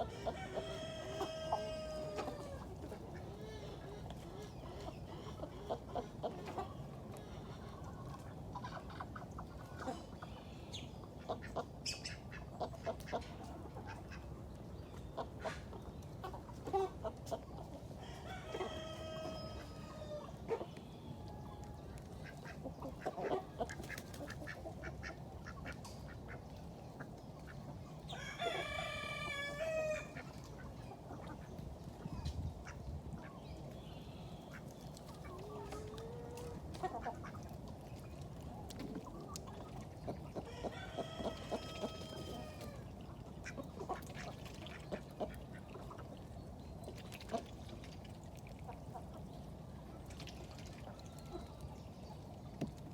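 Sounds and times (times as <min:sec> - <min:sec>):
rooster crowing: 0:00.0 - 0:02.6, 0:18.0 - 0:20.2, 0:28.2 - 0:30.2, 0:40.5 - 0:42.8
chickens clucking: 0:00.0 - 0:33.8, 0:34.4 - 0:47.8.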